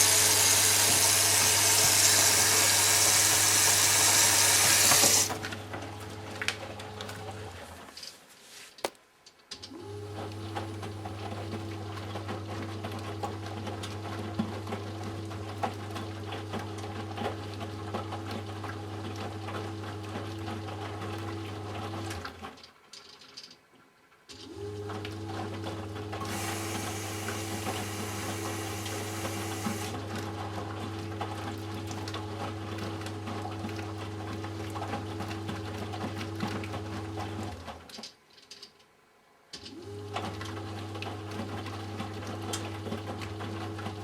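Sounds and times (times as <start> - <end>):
water rushing hiss: 0.0 - 5.3
washing machine motor humming: 0.0 - 7.7, 24.4 - 37.7.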